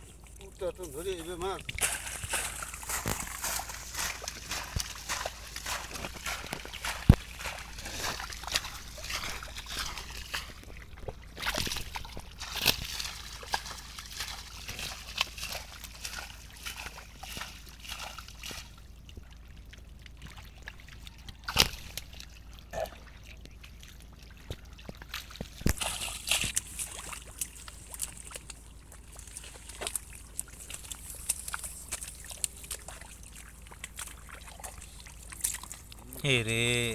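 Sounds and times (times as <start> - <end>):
water sloshing and splashing: 0.0 - 36.9.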